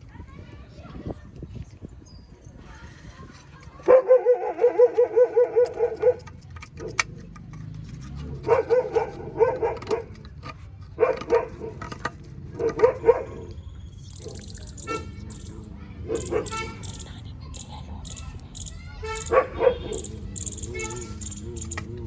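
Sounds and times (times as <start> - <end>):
small dog yapping: 3.8 - 6.3, 8.4 - 10.1, 19.3 - 22.0.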